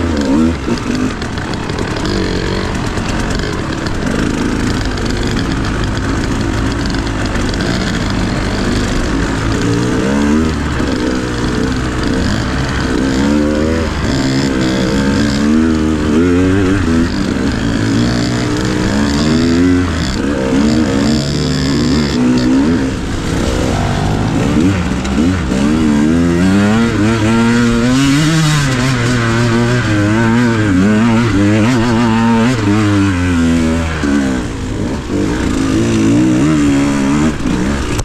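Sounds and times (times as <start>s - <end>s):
dirt bike engine revving: 0.0s - 38.0s
rushing noise: 22.9s - 27.2s.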